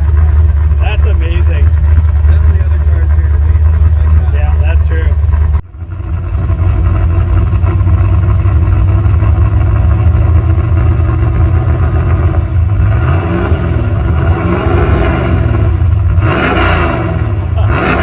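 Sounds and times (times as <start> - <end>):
engine idling with deep rumble: 0.0 - 18.0.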